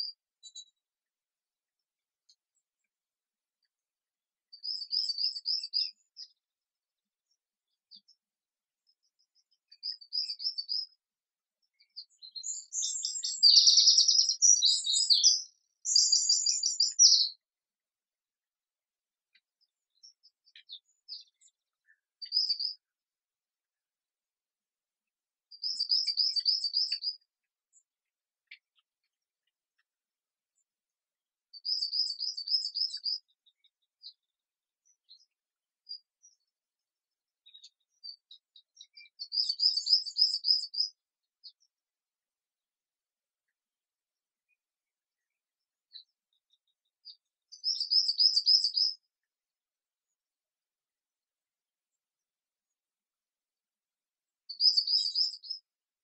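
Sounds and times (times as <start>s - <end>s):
songbird singing trills: 4.5s - 6.4s, 9.0s - 11.0s, 11.6s - 17.4s, 19.3s - 22.9s, 25.5s - 28.8s, 31.6s - 36.4s, 37.4s - 41.7s, 45.9s - 49.1s, 54.5s - 55.7s
high bird chirps: 11.8s - 17.4s, 47.6s - 49.0s, 54.5s - 55.6s.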